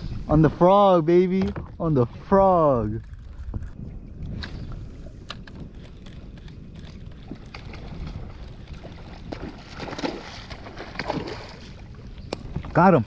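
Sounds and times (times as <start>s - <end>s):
wind buffeting microphone: 0.0s - 13.0s
light water splashes: 5.3s - 13.0s.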